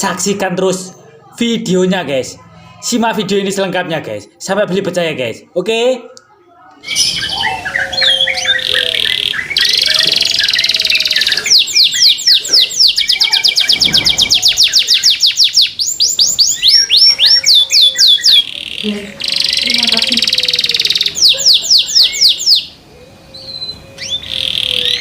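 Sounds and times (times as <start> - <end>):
canary singing: 6.7 - 25.0.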